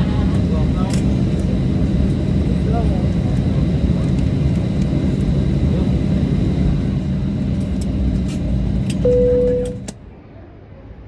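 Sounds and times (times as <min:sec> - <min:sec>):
airplane cabin rumble: 0:00.0 - 0:10.1
thin high tone: 0:09.0 - 0:09.9.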